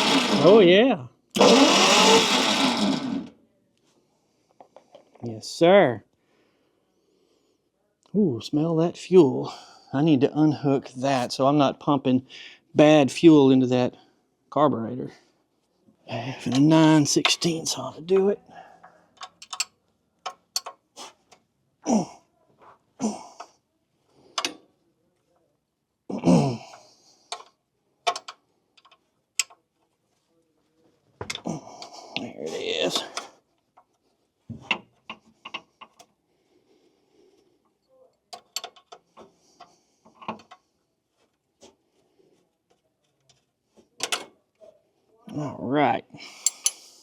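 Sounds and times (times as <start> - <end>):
wrench metal clicks: 19.2 - 20.8, 24.4 - 24.6, 28.1 - 29.6, 38.4 - 39.0, 46.4 - 46.8.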